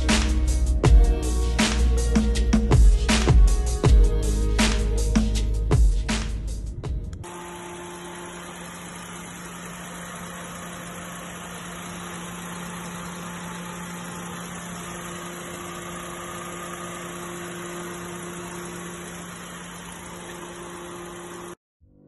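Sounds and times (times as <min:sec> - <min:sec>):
car engine idling: 0:07.2 - 0:21.6.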